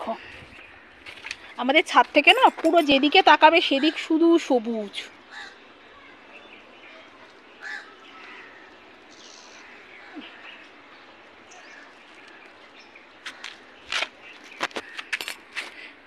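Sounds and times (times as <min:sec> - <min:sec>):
low outdoor background: 0:00.0 - 0:16.0
faint bird calls: 0:05.3 - 0:15.1.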